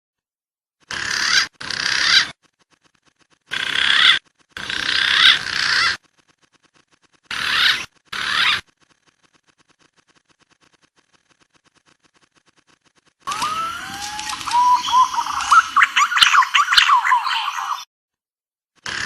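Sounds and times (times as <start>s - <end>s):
pigeon whistling calls: 13.3s - 17.9s.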